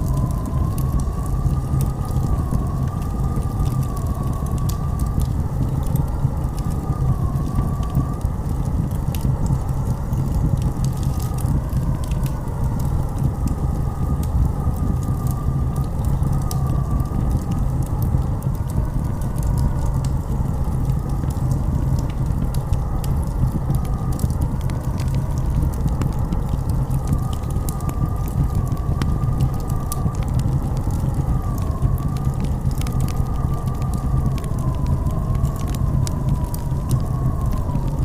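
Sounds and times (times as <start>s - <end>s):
blizzard wind roaring: 0.0s - 38.0s
thin wavering wind howl: 0.0s - 38.0s
sharp crackles: 15.7s - 38.0s.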